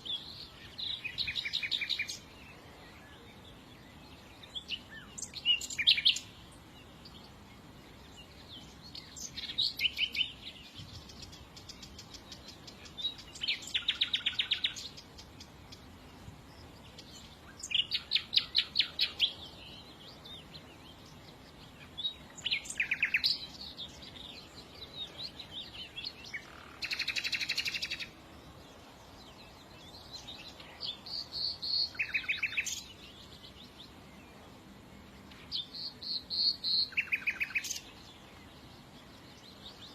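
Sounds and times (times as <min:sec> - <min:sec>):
faint steady hiss: 0:00.0 - 0:39.9
songbird trilling: 0:22.0 - 0:24.4, 0:25.0 - 0:28.2, 0:30.0 - 0:33.4, 0:35.5 - 0:38.0.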